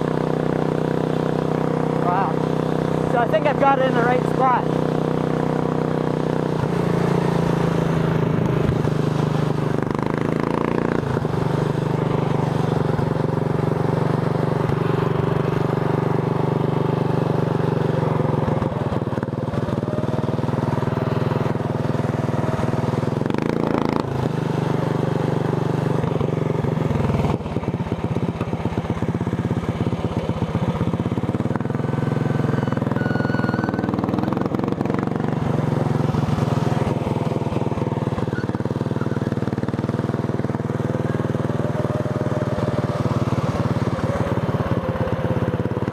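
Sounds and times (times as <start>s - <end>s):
lawn tractor engine running: 0.0s - 45.9s.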